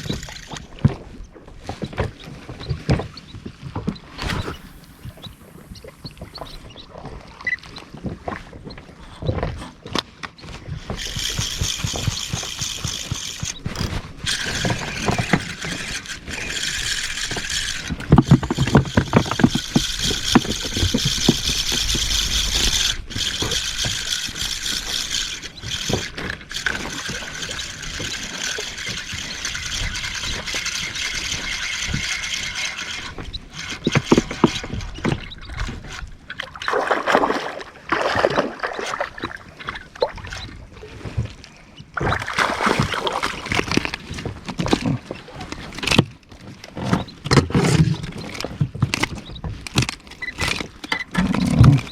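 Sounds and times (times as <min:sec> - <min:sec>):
fishing reel whirring: 0:00.0 - 0:01.0, 0:03.9 - 0:07.2, 0:10.5 - 0:36.0.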